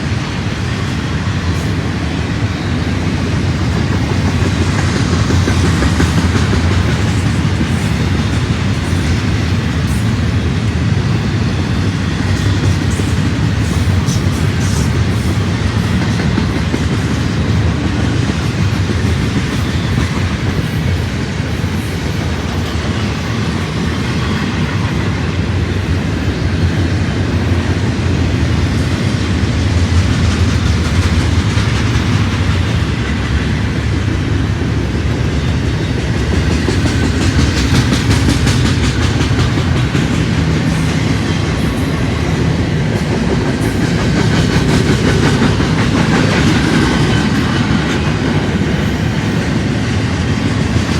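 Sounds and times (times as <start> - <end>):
train cars rumbling past: 0.0 - 50.9
wheels clacking over rail joints: 28.1 - 50.9.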